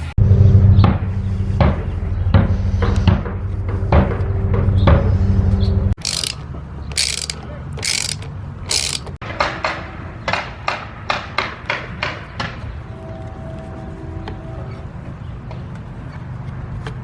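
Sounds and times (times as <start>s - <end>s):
ratchet wrench clicking: 6.0s - 9.2s.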